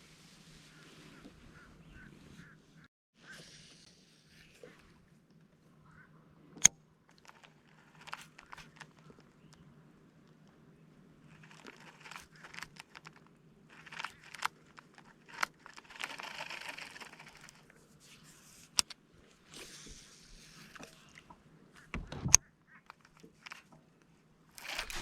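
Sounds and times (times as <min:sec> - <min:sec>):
rustling: 0:11.2 - 0:21.2, 0:22.9 - 0:25.0.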